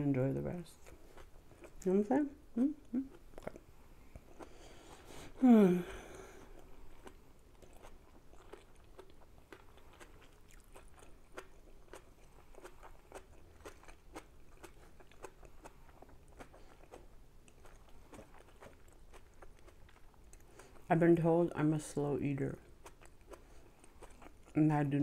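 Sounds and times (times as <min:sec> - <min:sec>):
person chewing with wet mouth clicks: 0:02.8 - 0:04.6, 0:06.4 - 0:20.9, 0:22.7 - 0:24.6.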